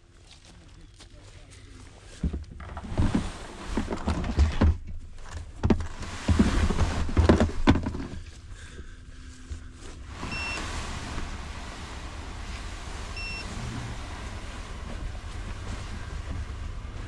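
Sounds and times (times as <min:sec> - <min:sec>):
clunks and knocks: 0:02.2 - 0:08.9, 0:10.1 - 0:17.0
low rumble of wind on microphone: 0:02.5 - 0:17.0
short high beep: 0:10.3 - 0:10.6, 0:13.2 - 0:13.5.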